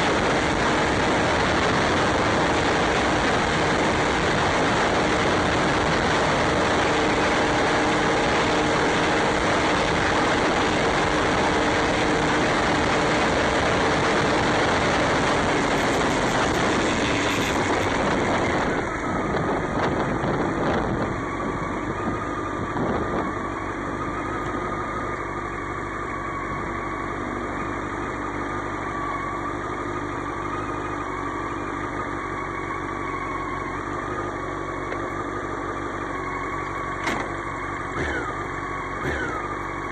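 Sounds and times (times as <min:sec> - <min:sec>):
wind rush on microphone: 0:00.0 - 0:24.8
motorcycle engine: 0:00.0 - 0:39.9.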